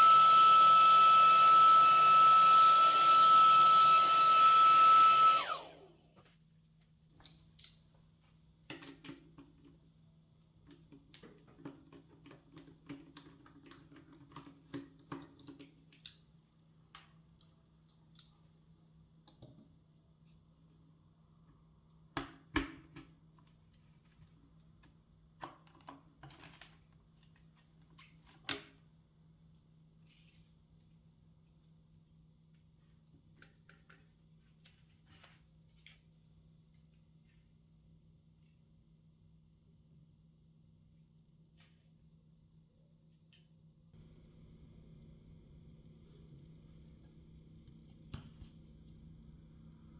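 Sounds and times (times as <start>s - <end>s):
blower motor whine spinning down: 0.0s - 6.1s
faint steady hum: 42.4s - 49.9s.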